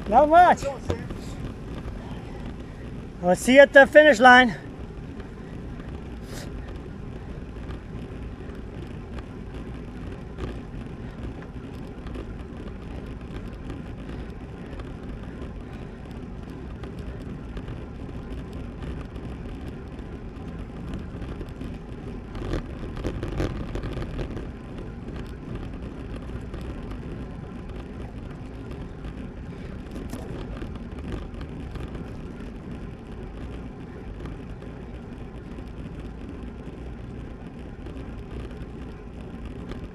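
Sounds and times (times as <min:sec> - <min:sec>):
bike tyre noise on road: 0:00.0 - 0:39.9.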